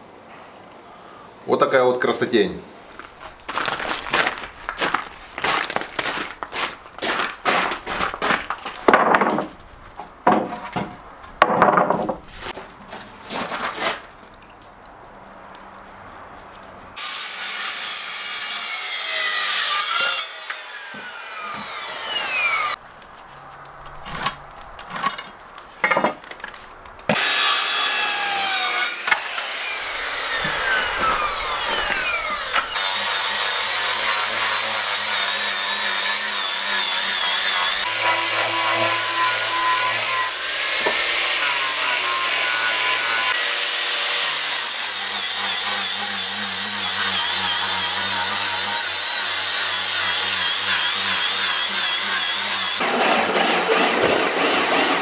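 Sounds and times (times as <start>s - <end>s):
electric saw cutting wood: 17.0s - 22.8s, 27.1s - 55.0s.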